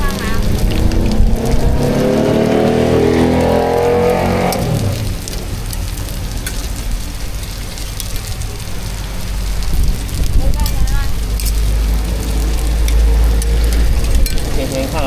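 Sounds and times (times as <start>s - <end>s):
vehicle passing by: 0.0s - 5.7s, 8.9s - 15.0s.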